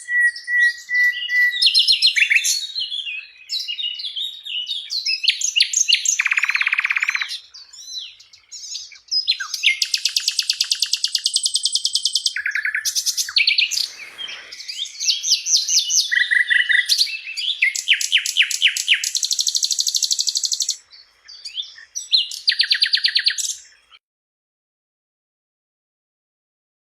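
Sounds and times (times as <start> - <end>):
flycatcher singing trills: 0.0 - 24.0.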